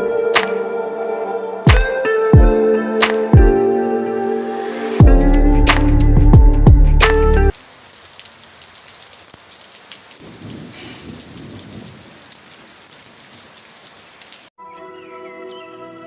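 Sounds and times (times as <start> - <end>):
soft music: 0.0 - 7.6, 14.6 - 16.0
steady rain falling: 7.5 - 14.5
thunder rumble: 10.2 - 12.7.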